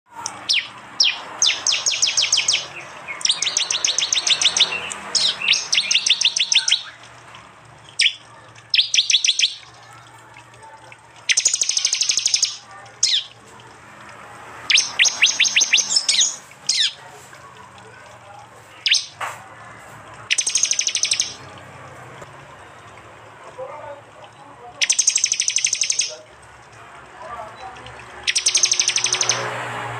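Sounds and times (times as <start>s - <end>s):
bird calling sharp chipping bursts: 0.2s - 7.0s, 7.9s - 9.7s, 11.3s - 13.4s, 14.6s - 17.0s, 18.8s - 19.2s, 20.3s - 21.4s, 24.8s - 26.2s, 28.2s - 29.5s.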